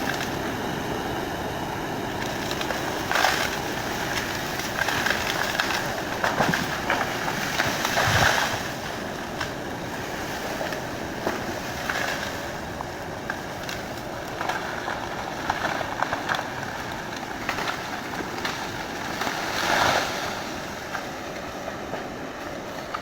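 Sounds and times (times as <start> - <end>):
excavator rumbling: 0.0 - 23.0
sharp cracks and knocks: 2.2 - 8.7, 13.2 - 21.1.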